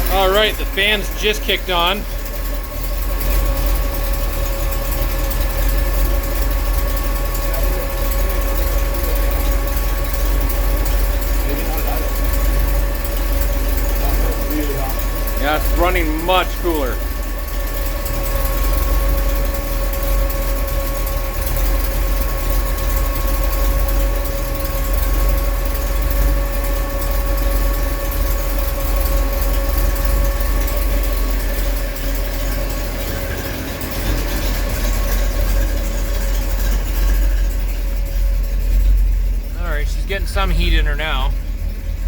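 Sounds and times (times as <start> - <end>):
steady whine: 0.0 - 5.0, 13.1 - 17.3, 31.1 - 42.0
car engine idling: 0.0 - 42.0
cooling fan running: 0.0 - 42.0.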